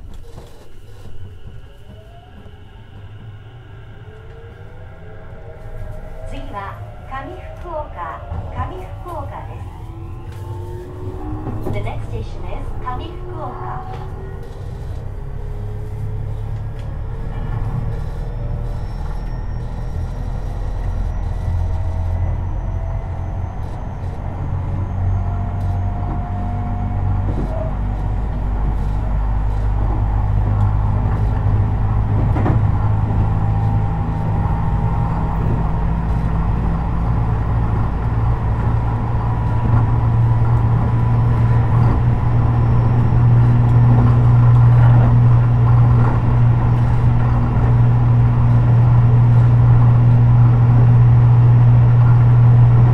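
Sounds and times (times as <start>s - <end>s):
train hum and rumble: 0.0s - 52.9s
electric motor whine rising: 4.0s - 31.3s.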